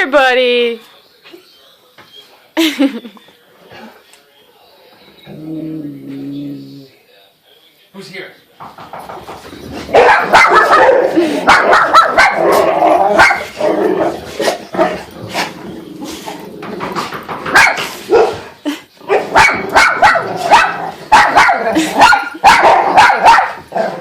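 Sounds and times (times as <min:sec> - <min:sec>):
dog barking: 0:09.9 - 0:13.6, 0:17.5 - 0:18.5, 0:19.1 - 0:24.0.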